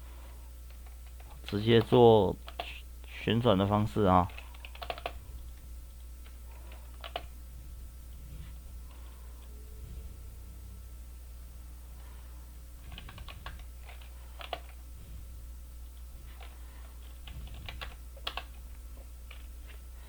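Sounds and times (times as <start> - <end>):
low electrical hum: 0.0 - 20.0
computer keyboard typing: 0.7 - 2.8, 4.2 - 5.3, 6.2 - 7.4, 12.8 - 14.8, 16.2 - 19.5.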